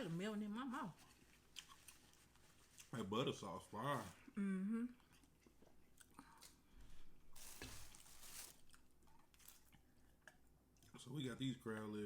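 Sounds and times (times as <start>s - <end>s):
chewing with wet clicks: 8.7s - 11.1s.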